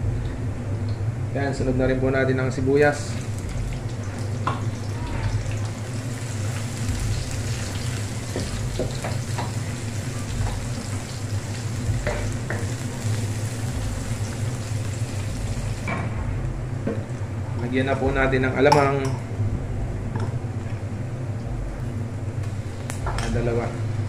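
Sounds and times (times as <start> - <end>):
steady low hum: 0.0 - 24.0
onion and garlic sizzling in oil: 3.0 - 15.9.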